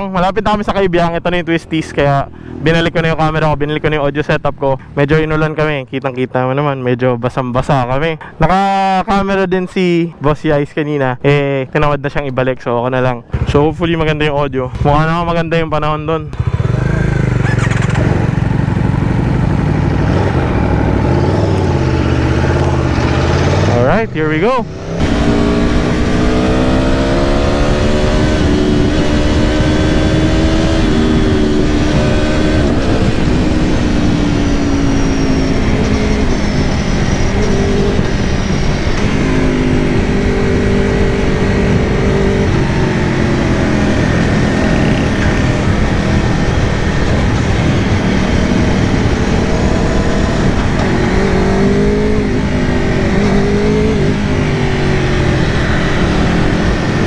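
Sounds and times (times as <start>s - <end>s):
wind and road noise: 0.0s - 57.0s
motorcycle engine revving: 16.2s - 57.0s.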